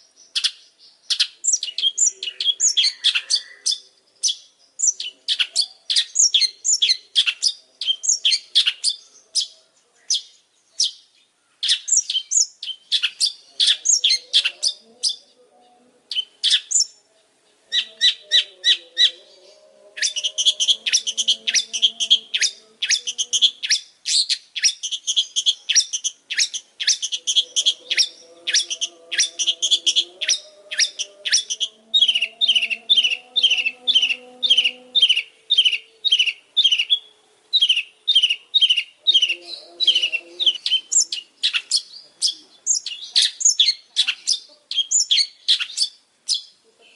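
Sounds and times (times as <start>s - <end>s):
shrike singing chattering notes: 17.7s - 45.6s.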